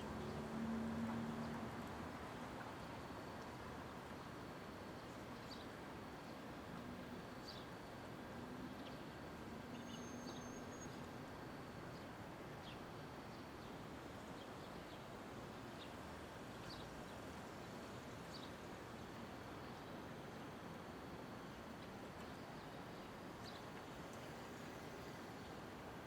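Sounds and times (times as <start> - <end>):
traffic hum: 0.0 - 3.0.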